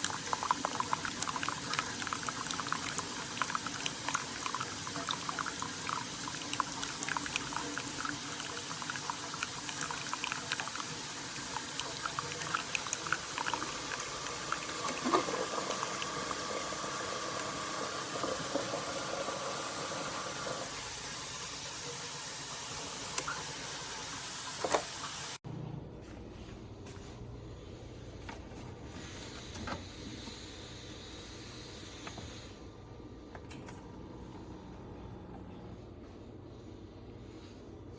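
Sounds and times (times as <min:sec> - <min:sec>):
coffee maker hissing and sputtering: 0:00.0 - 0:25.4.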